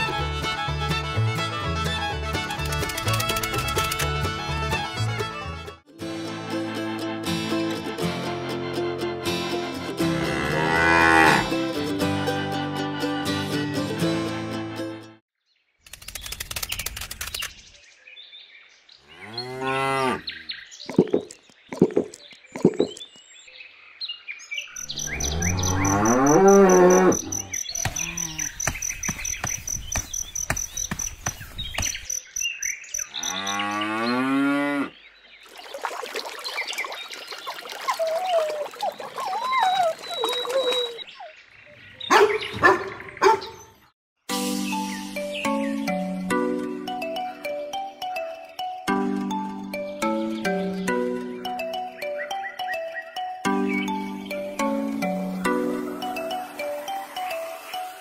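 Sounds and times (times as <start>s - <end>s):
cattle mooing: 10.2s - 11.5s, 25.2s - 28.5s.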